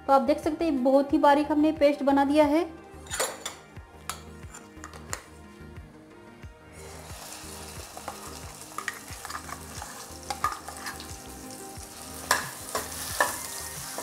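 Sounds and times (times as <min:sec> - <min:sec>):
spoon clinking against pan: 0:03.0 - 0:05.2, 0:12.3 - 0:14.0
paste sizzling in hot oil: 0:06.8 - 0:14.0.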